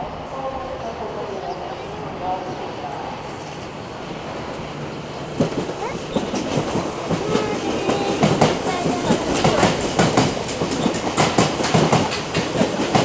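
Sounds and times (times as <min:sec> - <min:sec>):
train wheels clacking over rail joints: 0:05.3 - 0:13.0.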